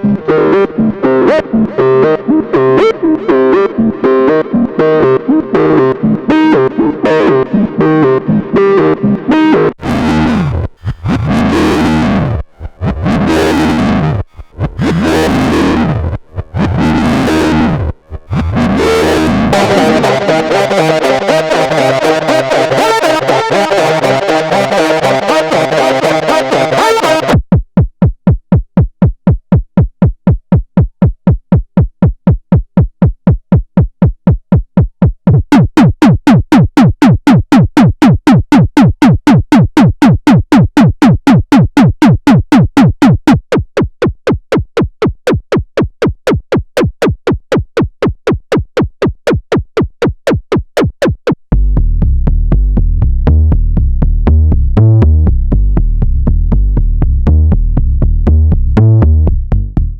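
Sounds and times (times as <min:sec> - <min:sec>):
deep sustained synth bass: 0:09.8 - 0:26.7, 0:51.5 - 0:59.9
synth staccato notes: 0:09.8 - 0:27.4, 0:35.3 - 0:51.8.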